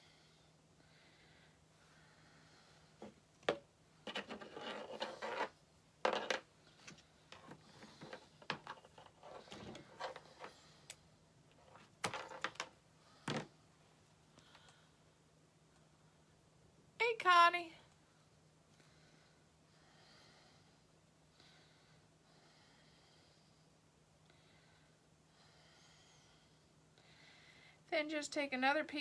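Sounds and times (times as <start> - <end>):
hands handling craft materials: 3.0 - 10.6.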